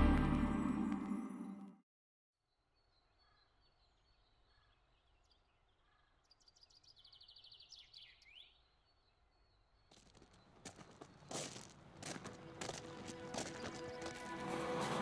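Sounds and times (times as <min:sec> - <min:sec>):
songbird singing: 0:02.5 - 0:11.6
faint outdoor ambience: 0:02.9 - 0:15.0.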